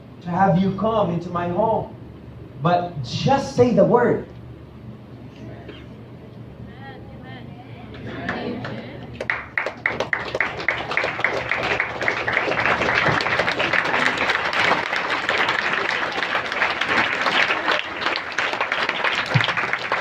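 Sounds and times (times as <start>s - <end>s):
congregation clapping: 8.0s - 20.0s.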